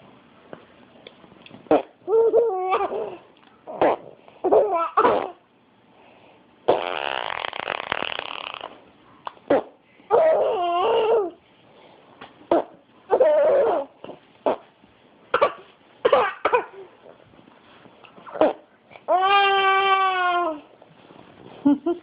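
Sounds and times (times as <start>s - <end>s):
baby laughing and babbling: 1.7s - 3.8s, 4.4s - 5.4s, 10.1s - 11.4s, 12.5s - 14.2s
raspberry-like buzz: 6.7s - 8.8s.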